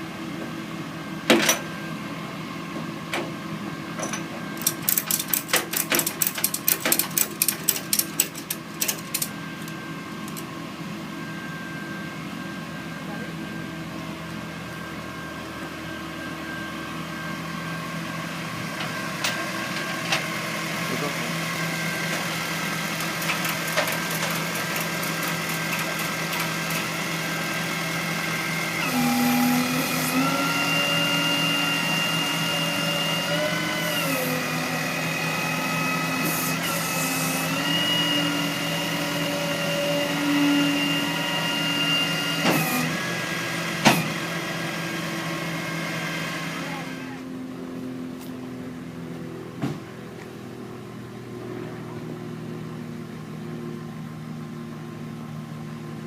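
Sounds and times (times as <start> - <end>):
motor whine changing pitch: 9.2 - 55.8.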